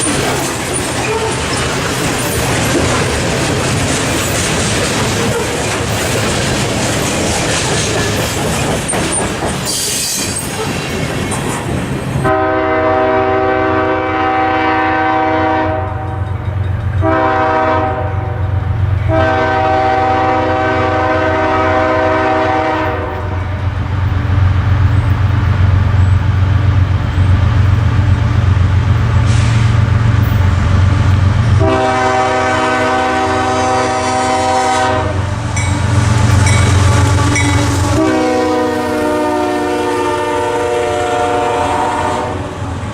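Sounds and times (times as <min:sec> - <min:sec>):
train rail noise: 0:00.0 - 0:42.9
locomotive air horn blasts: 0:12.2 - 0:16.3, 0:17.0 - 0:23.6, 0:31.6 - 0:35.3, 0:36.4 - 0:42.6
locomotive low rumble: 0:23.1 - 0:32.3.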